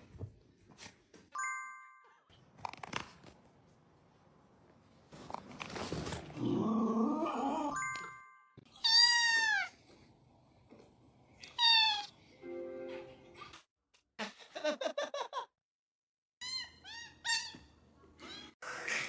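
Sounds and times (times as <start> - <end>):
rustling noise: 4.7 - 6.4.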